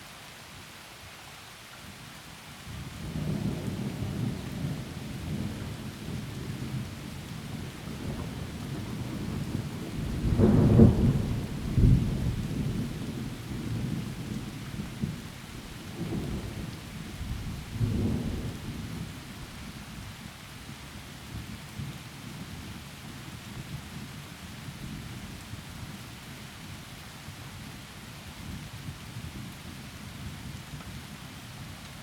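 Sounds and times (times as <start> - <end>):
heavy rain: 0.0 - 32.0
low rolling thunder: 3.1 - 20.4.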